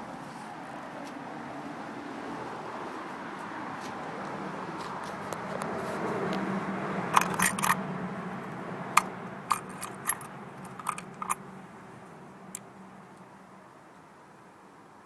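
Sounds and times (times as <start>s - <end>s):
sharp metallic clicks: 7.1s - 7.8s, 8.9s - 11.4s.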